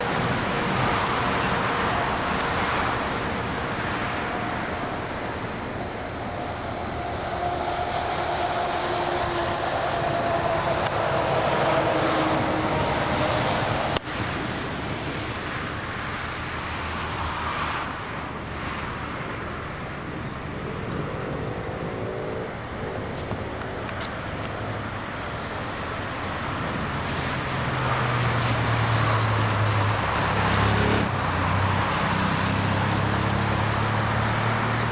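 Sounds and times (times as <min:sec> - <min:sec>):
vehicle engine tone: 0:00.0 - 0:14.2
road and wind noise: 0:00.0 - 0:34.9.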